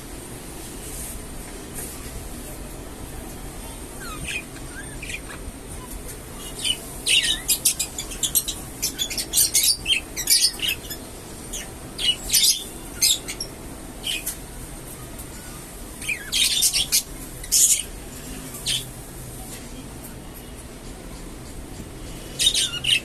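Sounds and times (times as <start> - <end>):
budgerigars chirping and chattering: 3.8 - 14.4, 16.0 - 19.0, 22.3 - 23.0.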